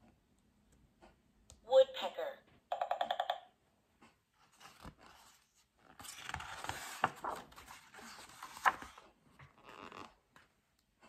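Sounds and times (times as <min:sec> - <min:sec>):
book pages turning: 0:04.4 - 0:10.5.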